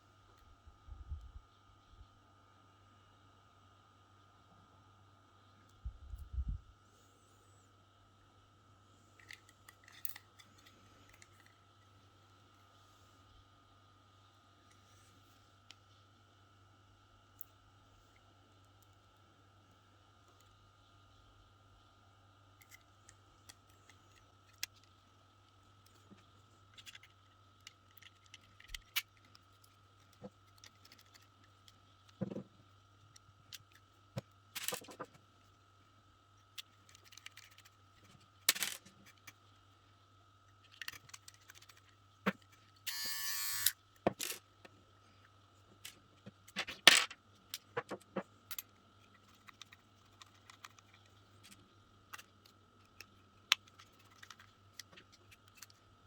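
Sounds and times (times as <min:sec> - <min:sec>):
low steady hum: 0:00.0 - 0:56.0
small parts clicking and scraping: 0:09.1 - 0:12.0, 0:22.6 - 0:35.6, 0:36.3 - 0:56.0
hair clippers buzz: 0:42.9 - 0:43.7.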